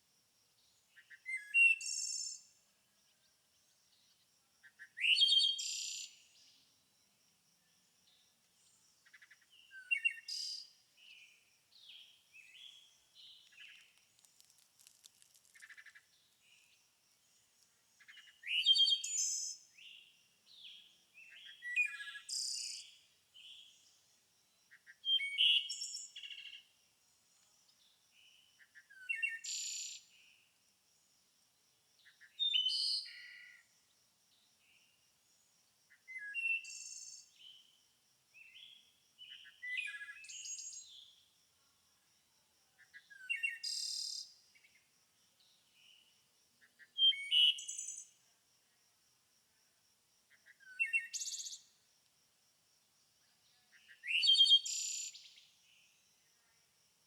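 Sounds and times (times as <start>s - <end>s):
songbirds singing: 0.6s - 6.8s, 7.6s - 26.7s, 27.4s - 30.4s, 38.4s - 41.3s, 42.8s - 48.2s, 50.3s - 51.8s, 53.4s - 56.0s.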